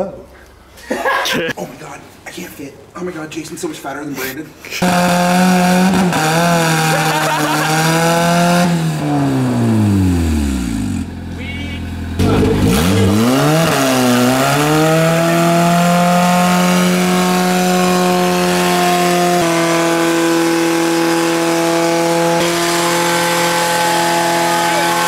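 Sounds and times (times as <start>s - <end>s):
car engine revving: 4.7s - 25.0s
tire spinning in burnout: 4.8s - 11.3s, 11.9s - 25.0s.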